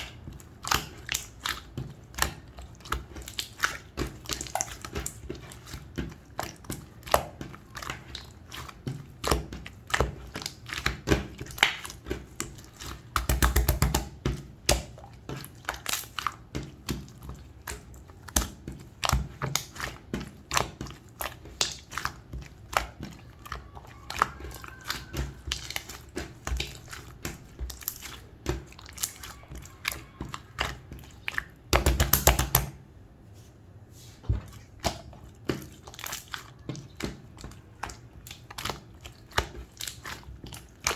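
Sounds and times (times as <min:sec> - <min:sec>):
slime crackling: 0:00.0 - 0:32.8, 0:34.5 - 0:40.9.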